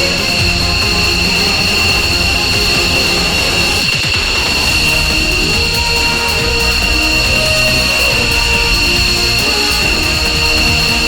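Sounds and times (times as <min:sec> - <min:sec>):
jet engines whining: 0:00.0 - 0:11.0.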